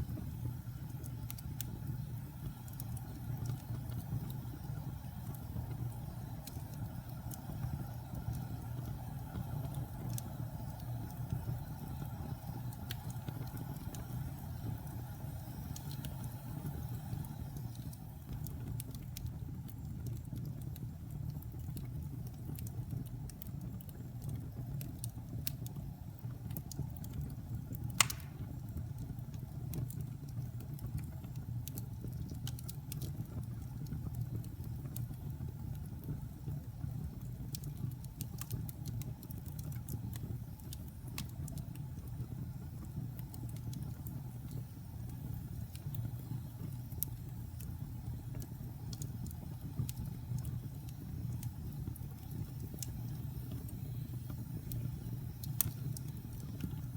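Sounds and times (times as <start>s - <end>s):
fire crackling: 0.0s - 56.9s
fire rumbling: 0.0s - 56.9s
sharp loud pop of fire: 28.0s - 28.5s.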